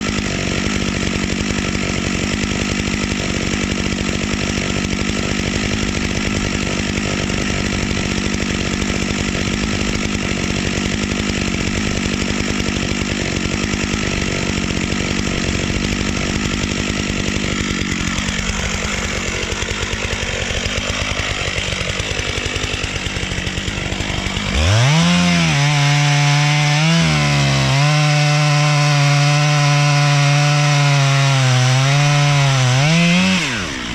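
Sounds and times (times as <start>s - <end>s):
chainsaw cutting tree: 0.0s - 33.9s.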